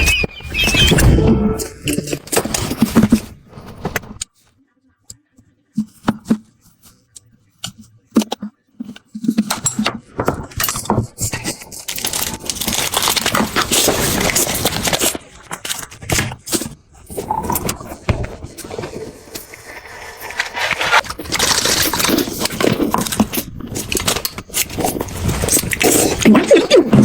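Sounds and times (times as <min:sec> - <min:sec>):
crackling and rustling: 0:05.8 - 0:27.0
sharp clicks and scrapes: 0:05.8 - 0:27.0.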